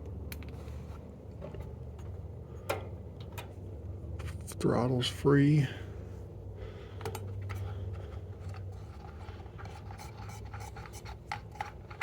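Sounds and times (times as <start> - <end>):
handling clicks and rubbing: 7.0 - 12.0.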